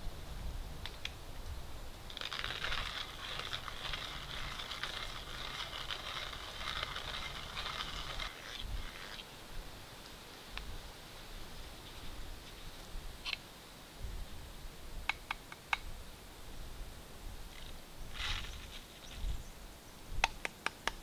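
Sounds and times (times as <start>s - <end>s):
hand coffee grinder grinding beans: 2.1s - 9.2s.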